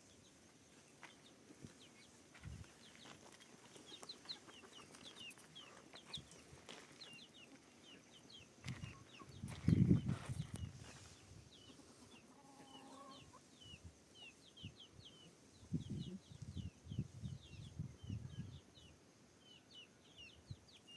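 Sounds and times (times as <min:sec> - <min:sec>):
chicks peeping: 0:01.8 - 0:20.9
chickens clucking: 0:03.6 - 0:08.1, 0:08.7 - 0:16.4.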